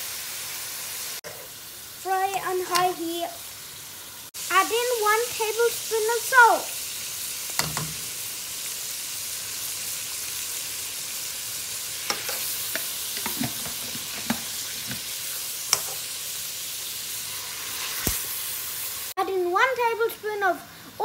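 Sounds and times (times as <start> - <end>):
chicken sizzling in a frying pan: 0.0 - 21.0
spatula scraping and tapping pan: 12.0 - 15.1, 15.7 - 16.0.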